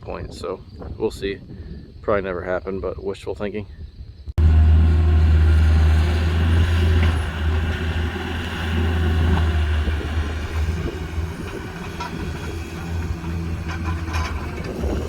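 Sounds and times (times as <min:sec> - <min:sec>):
engine low rumble: 0:04.4 - 0:15.0.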